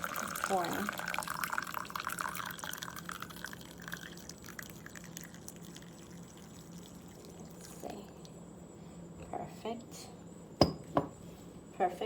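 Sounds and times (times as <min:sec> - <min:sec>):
coffee pouring into a cup: 0:00.0 - 0:08.2.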